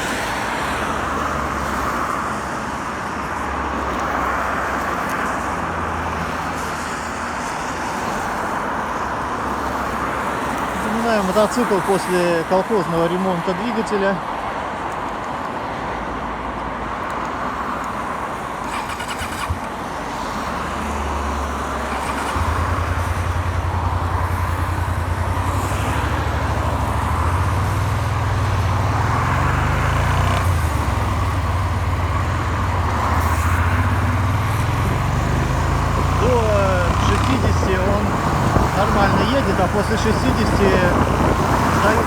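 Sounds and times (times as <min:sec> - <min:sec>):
road noise: 0:00.0 - 0:42.0
wind: 0:00.0 - 0:42.0
motorcycle engine running: 0:21.4 - 0:42.0.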